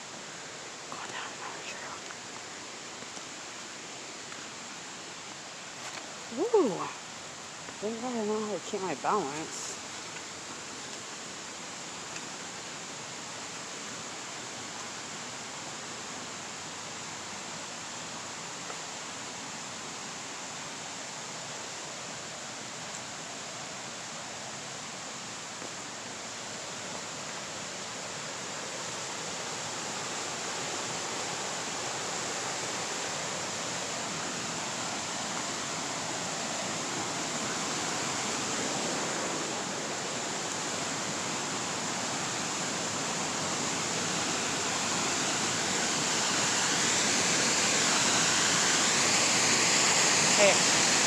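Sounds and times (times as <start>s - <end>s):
waterfall rushing: 24.0s - 51.0s.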